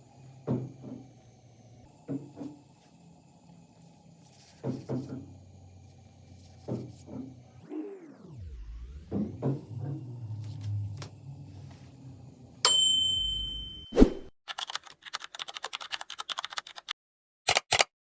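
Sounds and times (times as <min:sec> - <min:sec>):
bright bell ding: 0:12.6 - 0:14.0
typing-like clicks: 0:14.5 - 0:17.9.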